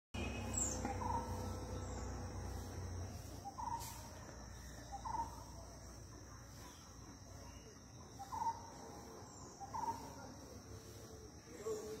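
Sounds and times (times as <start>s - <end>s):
bird call: 0.2s - 2.1s, 3.2s - 5.6s, 6.6s - 10.3s
high insect drone: 0.2s - 12.0s.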